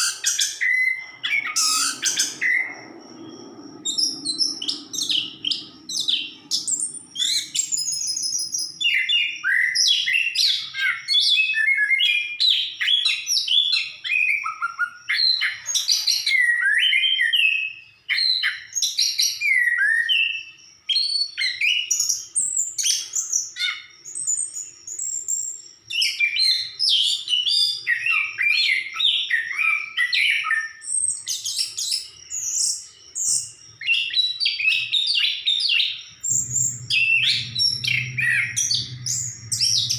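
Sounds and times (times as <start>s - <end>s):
thrush singing: 36.1s - 39.9s.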